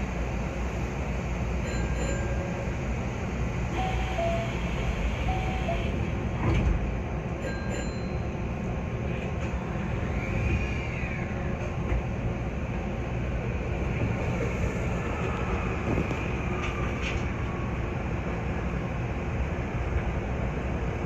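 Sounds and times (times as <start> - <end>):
electric train pulling away: 1.7 - 6.2.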